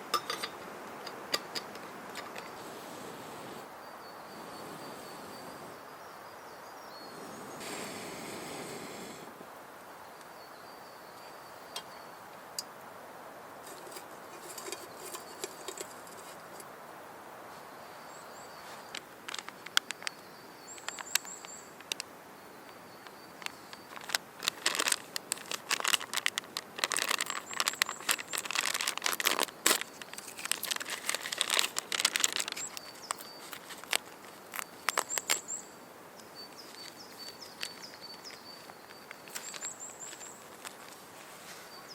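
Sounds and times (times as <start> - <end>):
campfire crackling and popping: 18.9 - 35.6.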